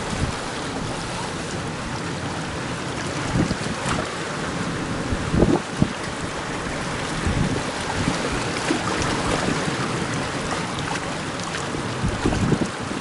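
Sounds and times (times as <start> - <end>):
sea and surf rushing: 0.0 - 13.0
wind buffeting microphone: 0.0 - 13.0.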